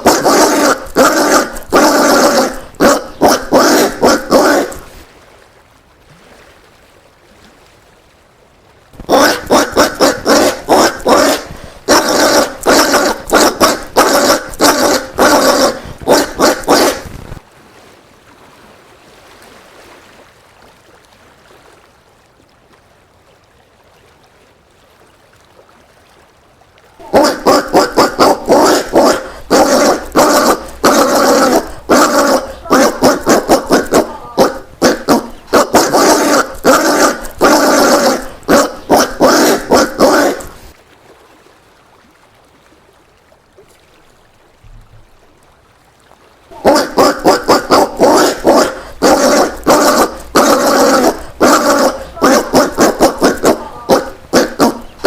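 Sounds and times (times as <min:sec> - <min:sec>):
peccary barking grunts: 0:00.0 - 0:05.0, 0:09.0 - 0:17.1, 0:27.0 - 0:40.7, 0:46.5 - 0:55.0.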